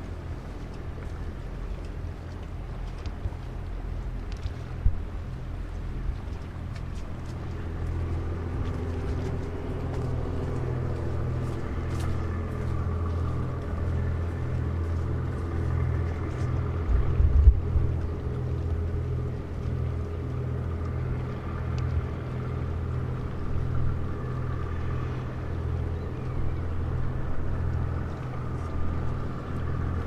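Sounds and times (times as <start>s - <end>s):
wind buffeting microphone: 0.0s - 30.0s
diesel engine throbbing: 7.2s - 30.0s.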